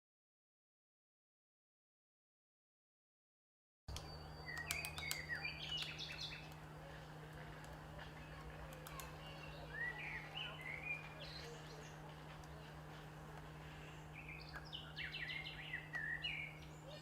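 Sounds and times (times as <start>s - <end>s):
small birds chirping: 3.9s - 17.0s
steady low hum: 3.9s - 17.0s.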